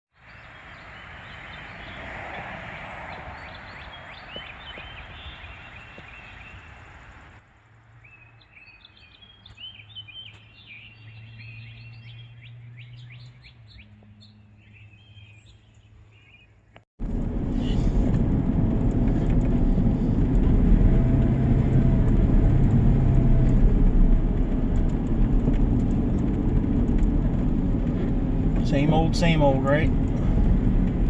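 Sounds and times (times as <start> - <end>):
outdoor background noise: 0.1 - 31.0
small birds chirping: 0.2 - 7.3, 8.0 - 16.8.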